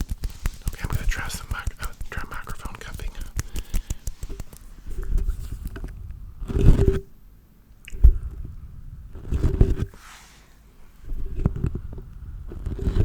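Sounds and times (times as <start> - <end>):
hands rubbing near microphone: 0.0 - 5.8.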